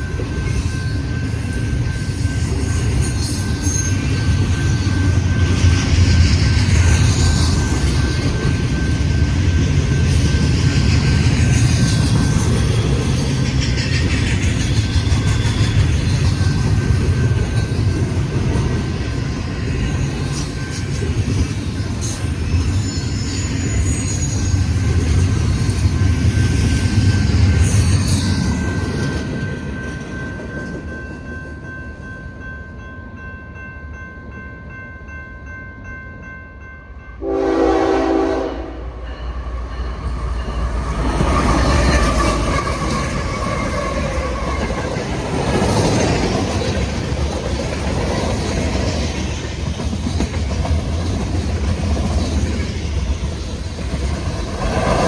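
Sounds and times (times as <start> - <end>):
freight train rumble: 0.0 - 55.0
train horn blast: 37.2 - 39.1.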